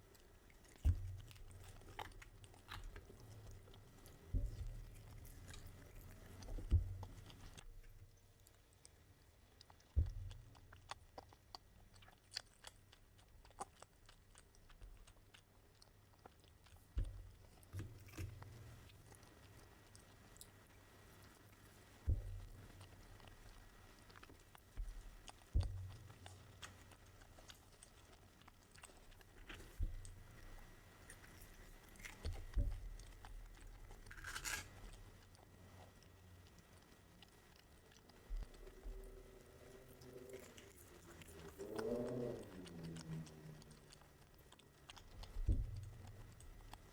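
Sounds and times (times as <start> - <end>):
person chewing crunchy food: 0.0 - 46.9
crunchy rustle: 33.5 - 35.2.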